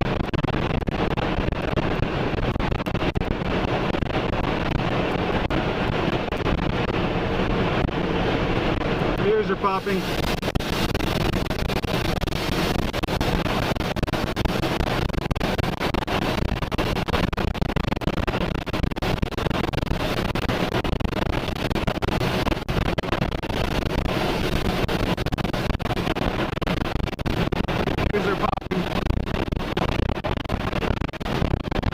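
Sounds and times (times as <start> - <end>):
strong wind buffeting microphone: 0.0 - 31.9.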